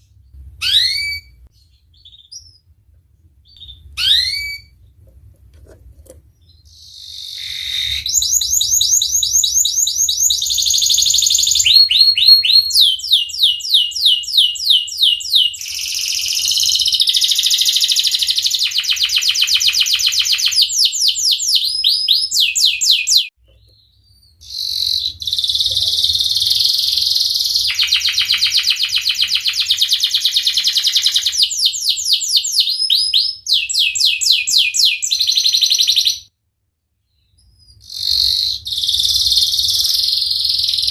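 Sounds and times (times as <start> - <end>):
canary singing rolling trills: 0.0 - 2.7, 3.3 - 5.1, 6.2 - 36.3, 37.0 - 40.9.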